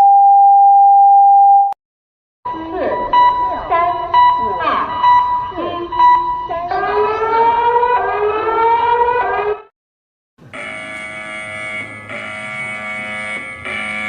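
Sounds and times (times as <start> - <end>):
harsh buzzing alarm tone: 10.4 - 14.0
rising siren sweep: 10.5 - 14.0.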